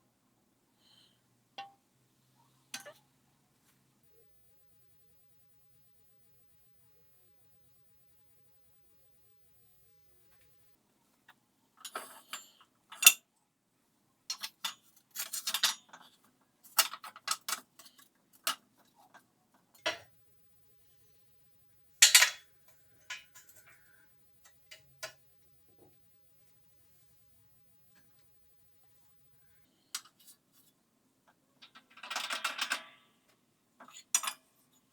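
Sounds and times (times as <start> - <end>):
tools and metal parts clinking: 14.3 - 18.6, 22.0 - 23.8, 31.6 - 32.9, 33.8 - 34.5.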